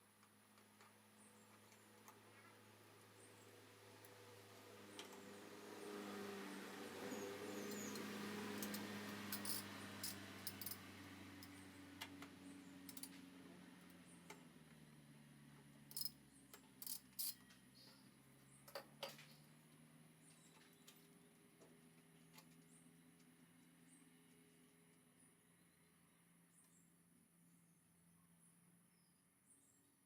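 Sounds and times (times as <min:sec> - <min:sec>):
clicks and clinks of tools: 0:07.7 - 0:10.8, 0:12.9 - 0:13.2, 0:15.9 - 0:17.6.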